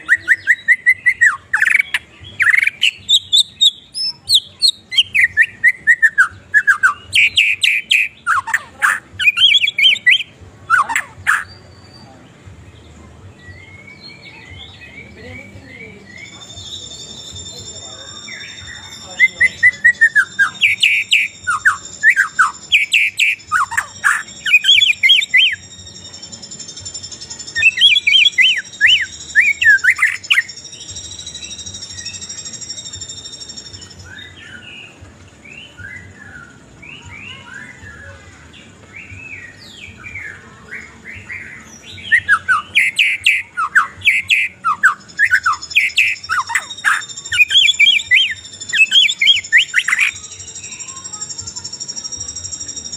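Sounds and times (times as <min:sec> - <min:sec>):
songbird singing: 0:00.0 - 0:52.9.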